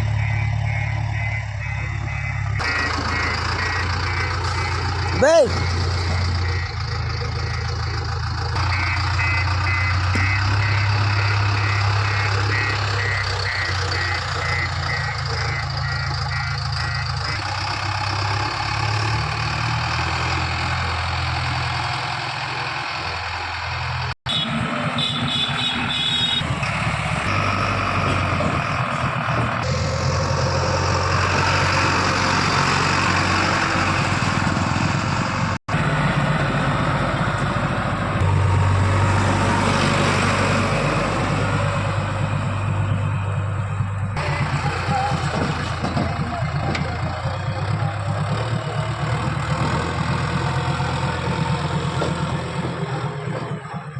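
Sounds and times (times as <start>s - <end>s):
higher beeps: 0.0s - 7.7s, 8.7s - 17.3s
reversing alarm beeping: 0.0s - 19.1s
diesel engine running: 0.0s - 53.9s.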